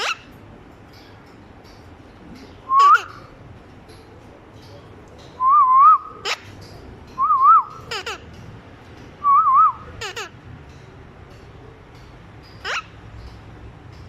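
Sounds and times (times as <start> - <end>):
parrot whistling: 2.7 - 3.2, 7.2 - 8.1, 9.2 - 10.3, 12.6 - 13.0.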